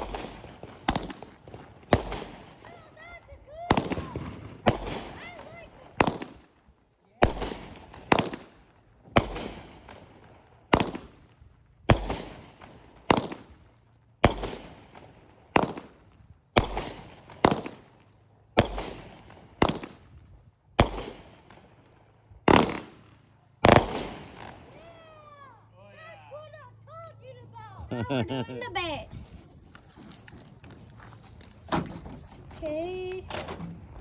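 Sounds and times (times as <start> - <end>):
firework bangs: 0.0 - 6.6, 7.2 - 20.2, 20.8 - 21.8, 22.4 - 25.4.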